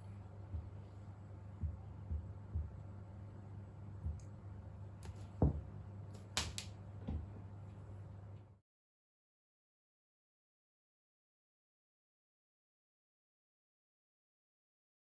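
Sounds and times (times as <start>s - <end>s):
steady low hum: 0.0s - 8.6s
soft dull thumps: 1.6s - 2.8s
sharp taps and clicks: 6.2s - 6.7s.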